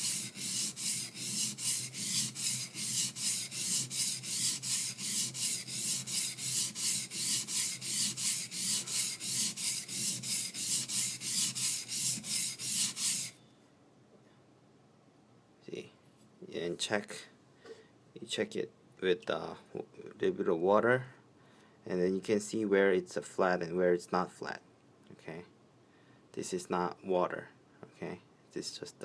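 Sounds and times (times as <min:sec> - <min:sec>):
knife scraping on sharpening stone: 0:00.0 - 0:13.4.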